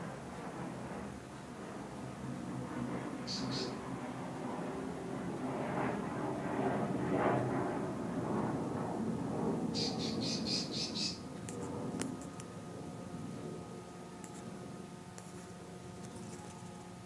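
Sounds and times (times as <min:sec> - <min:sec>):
bird chirping: 0:03.2 - 0:03.8, 0:09.8 - 0:11.2.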